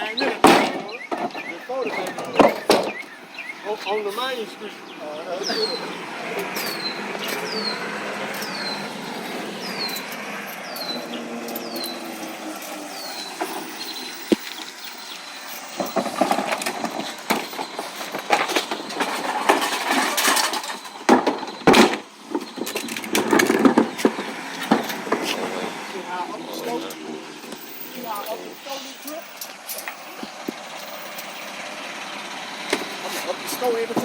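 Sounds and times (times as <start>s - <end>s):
recyclables clattering and knocking: 0.0s - 4.6s, 5.4s - 34.0s
high falling chirp: 0.0s - 19.5s.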